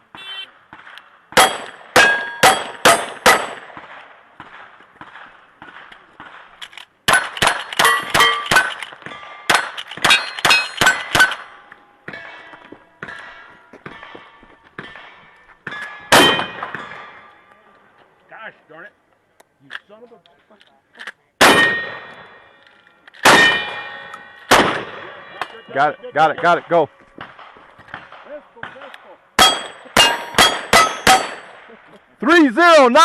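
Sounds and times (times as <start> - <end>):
gunshots: 0.1 - 11.5, 14.8 - 17.2, 21.4 - 22.4, 23.2 - 25.6, 26.3 - 31.8
steel target ringing: 1.4 - 3.6, 7.1 - 17.5, 21.4 - 22.6, 23.2 - 28.3, 29.4 - 31.6.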